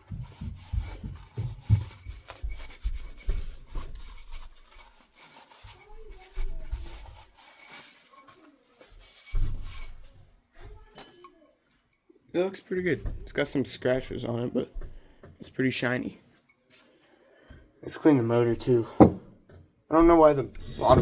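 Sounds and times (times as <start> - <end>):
cloth wiping plastic: 0.0 - 10.2
handling bumps: 18.8 - 19.6.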